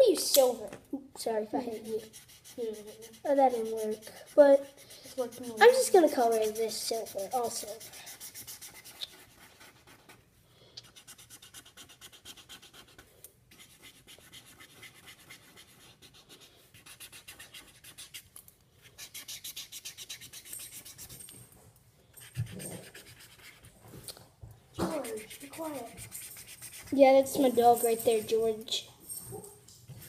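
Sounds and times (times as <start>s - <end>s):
marker scribbling on paper: 1.6s - 10.2s, 10.8s - 18.3s, 22.2s - 23.8s, 24.8s - 28.4s.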